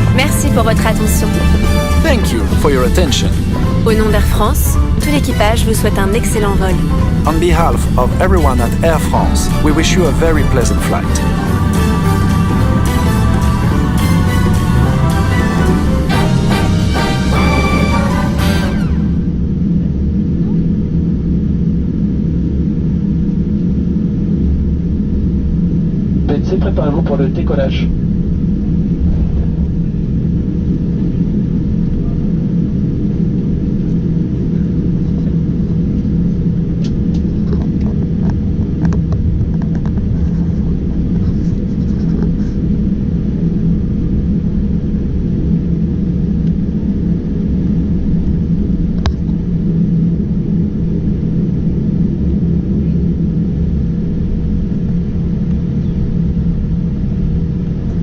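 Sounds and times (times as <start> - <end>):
cabin air system: 0.0 - 19.9
low rumble of jet engines: 0.0 - 58.0.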